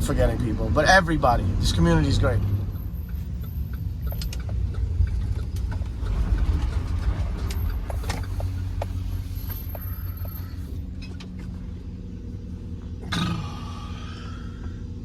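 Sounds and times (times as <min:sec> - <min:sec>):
car rumble inside cabin: 0:00.0 - 0:15.0
faint clicks and rattles: 0:03.0 - 0:09.0.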